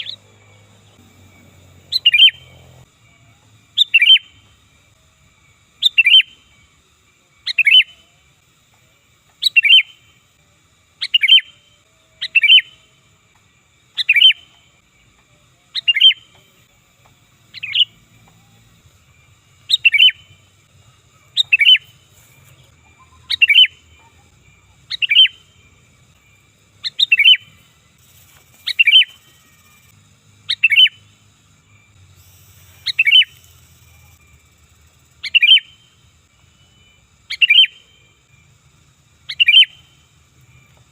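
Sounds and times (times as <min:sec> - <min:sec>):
bulbul calling: 0:00.0 - 0:02.9, 0:03.8 - 0:04.6, 0:05.8 - 0:06.4, 0:07.5 - 0:08.0, 0:09.4 - 0:10.0, 0:13.9 - 0:14.6, 0:15.7 - 0:16.6, 0:17.4 - 0:31.0, 0:32.2 - 0:36.0, 0:36.6 - 0:38.0, 0:39.2 - 0:40.0.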